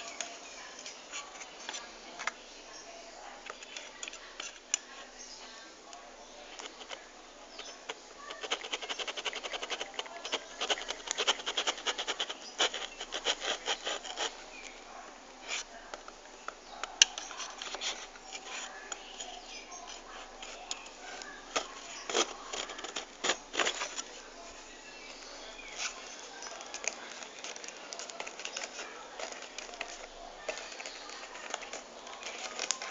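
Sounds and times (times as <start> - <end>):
packaging clicks and crackles: 6.5 - 14.8, 15.9 - 24.3, 25.1 - 32.9.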